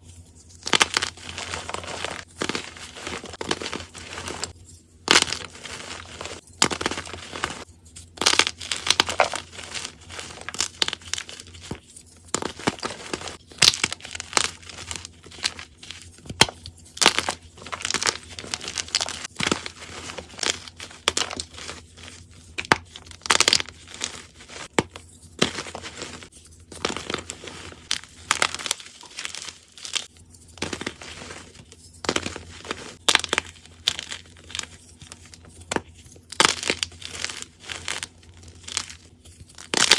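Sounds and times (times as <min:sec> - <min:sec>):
chalk cubes crunching: 0:00.0 - 0:39.9.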